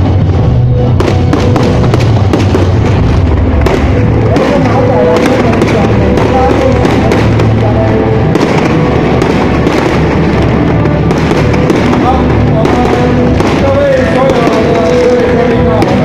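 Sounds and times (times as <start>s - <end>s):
fireworks bursting and crackling: 0.0s - 16.0s
music: 0.0s - 16.0s
voices: 4.1s - 10.0s, 10.6s - 16.0s.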